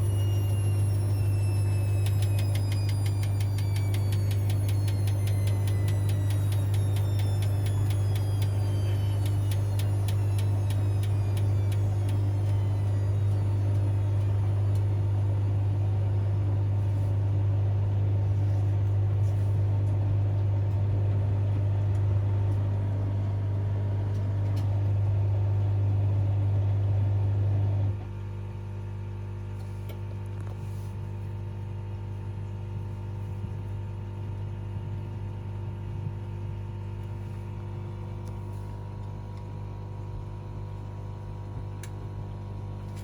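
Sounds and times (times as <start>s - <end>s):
drum motor whine: 0.0s - 26.2s
washing machine humming: 0.0s - 43.0s.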